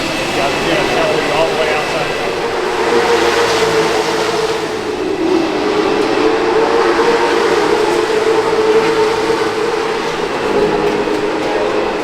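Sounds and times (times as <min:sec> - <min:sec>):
racing engines droning: 0:00.0 - 0:12.0.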